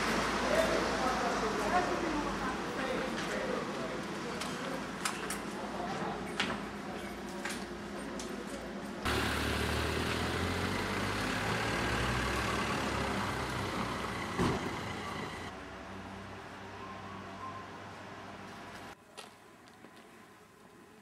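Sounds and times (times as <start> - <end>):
vehicle engine humming: 9.0 - 16.8.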